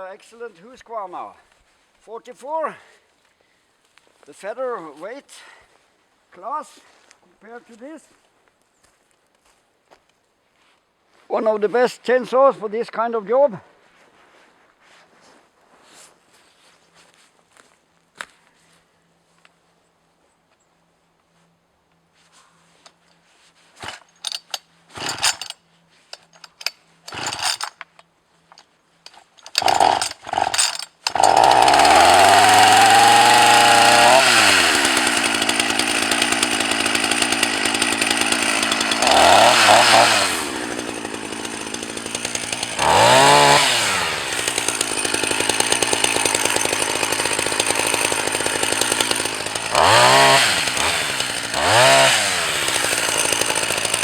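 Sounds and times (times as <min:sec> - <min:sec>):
chainsaw engine revving: 0:23.8 - 0:25.6, 0:26.2 - 0:27.8, 0:29.1 - 0:54.0
chainsaw starter cord pulls: 0:23.8 - 0:54.0.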